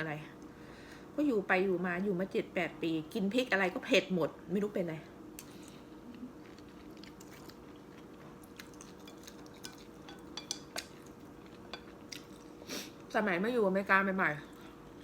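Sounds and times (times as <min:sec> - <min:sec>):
steady low hum: 0:00.0 - 0:15.0
quiet chewing: 0:05.4 - 0:13.2.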